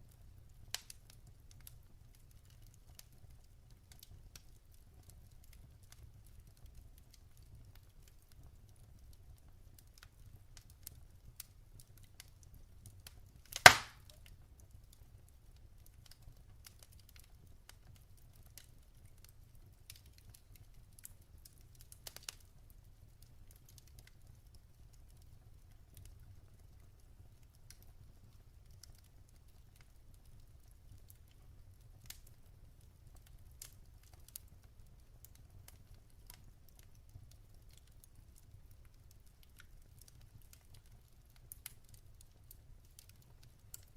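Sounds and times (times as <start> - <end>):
wood fire crackling: 0.0 - 43.9
log popping: 13.6 - 14.2.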